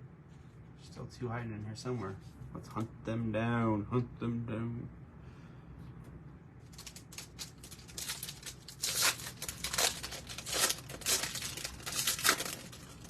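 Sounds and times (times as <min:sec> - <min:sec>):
foil pack tearing and crinkling: 0:06.7 - 0:13.0.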